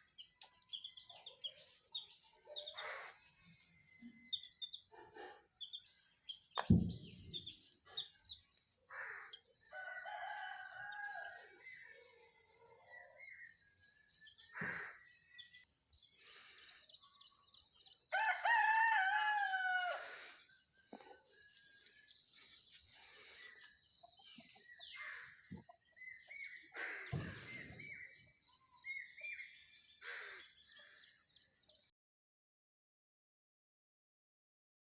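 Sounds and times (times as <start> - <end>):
rooster crowing: 9.7 - 11.5, 18.1 - 20.1
chickens clucking: 23.4 - 26.4.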